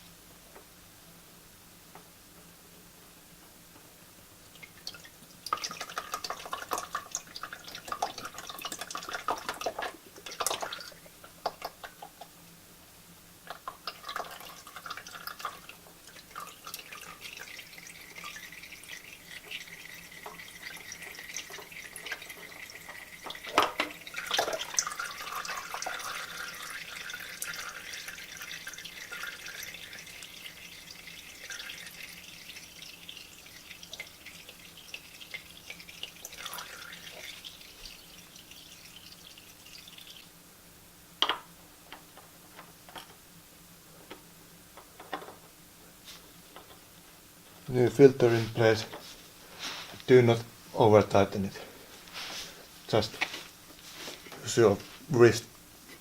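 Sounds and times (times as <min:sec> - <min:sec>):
oil dripping into a pan: 0:04.6 - 0:12.3, 0:13.4 - 0:40.3.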